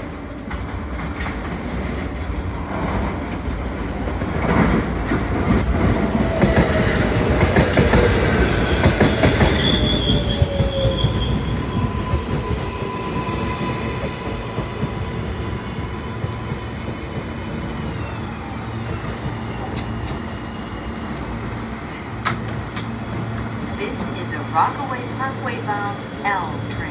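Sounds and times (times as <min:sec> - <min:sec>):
train wheel squeal: 0:05.3 - 0:22.1.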